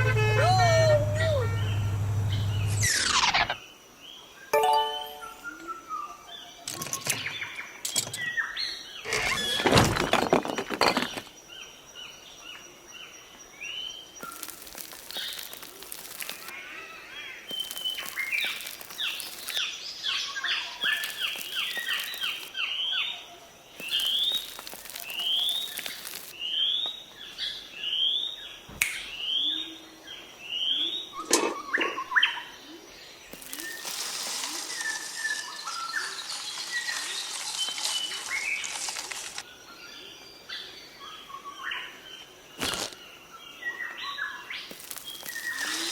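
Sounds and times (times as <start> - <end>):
small birds chirping: 13.6 - 19.9, 20.6 - 22.8, 23.7 - 27.9, 30.6 - 38.8, 42.6 - 45.9
rustling: 14.2 - 16.5, 17.5 - 19.6, 20.8 - 22.5, 23.8 - 26.4, 33.3 - 39.4, 44.7 - 45.9.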